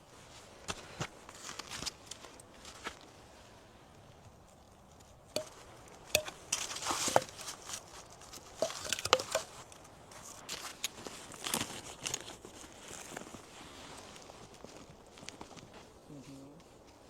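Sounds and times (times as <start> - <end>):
crunches and rustles: 4.8 - 17.0.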